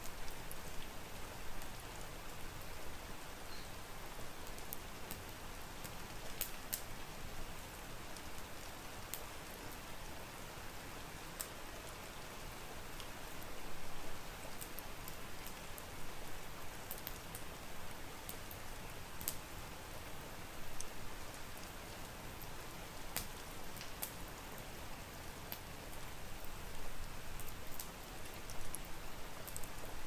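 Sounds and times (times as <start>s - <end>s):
steady rain: 0.0s - 30.0s
wood fire crackling: 4.4s - 7.0s, 12.9s - 30.0s.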